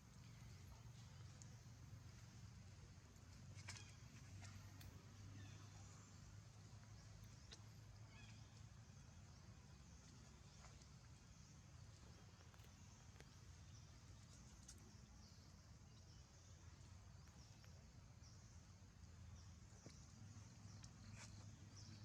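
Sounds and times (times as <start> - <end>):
faint low hum: 0.0 - 22.0
faint sharp clicks: 3.6 - 5.0.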